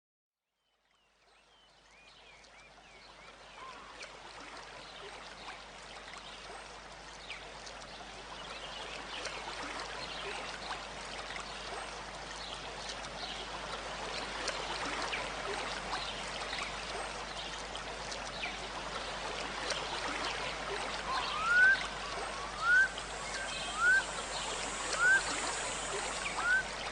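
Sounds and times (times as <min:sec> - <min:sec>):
small birds chirping: 0:21.1 - 0:26.9
loud upward-sweeping call: 0:22.4 - 0:26.6.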